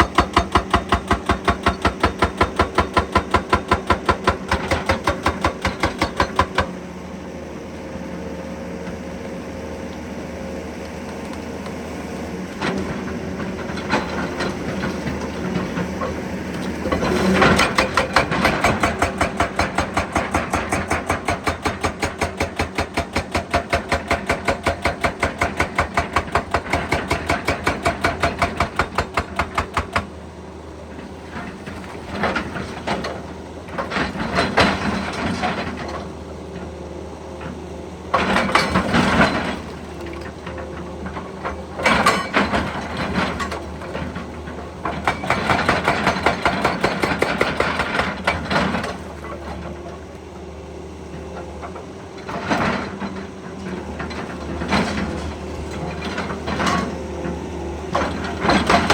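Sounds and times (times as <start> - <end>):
hydraulic breaker hammering: 0.0 - 6.8, 16.9 - 30.1, 44.8 - 49.0
diesel engine running: 0.0 - 22.6, 23.8 - 58.9.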